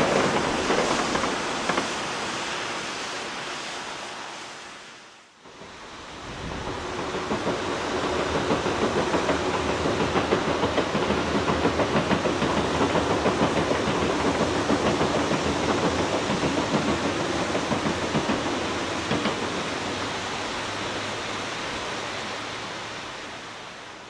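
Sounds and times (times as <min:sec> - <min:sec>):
train wheels rumbling on rails: 0:00.0 - 0:04.4, 0:05.4 - 0:24.0
fast uneven wheel clatter: 0:06.7 - 0:20.2.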